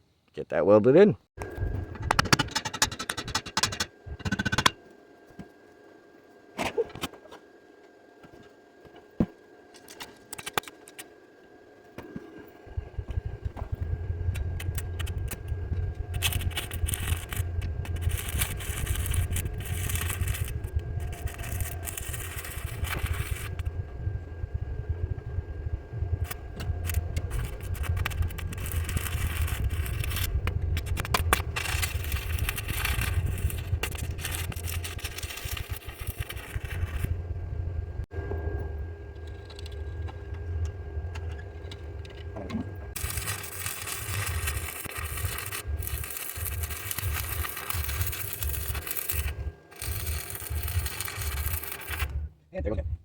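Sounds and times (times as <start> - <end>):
engine running with low rumble: 12.1 - 53.0.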